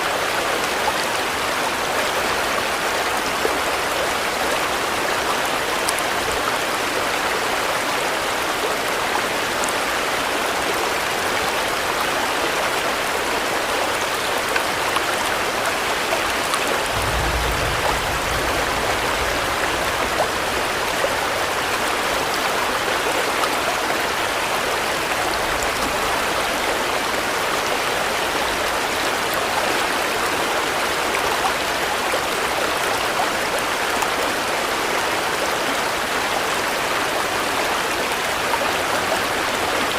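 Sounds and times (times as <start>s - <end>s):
steady rain falling: 0.0s - 39.9s
brief low rumble: 16.9s - 21.7s.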